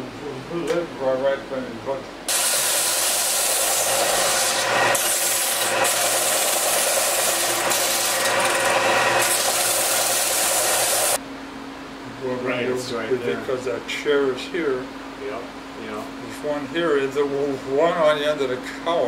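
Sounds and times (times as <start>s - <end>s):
loud steady rasping: 2.3s - 11.2s.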